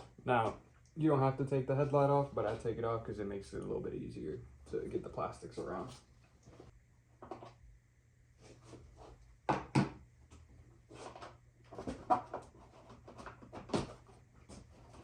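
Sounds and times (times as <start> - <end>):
plastic parts knocking and rattling: 11.0 - 15.0.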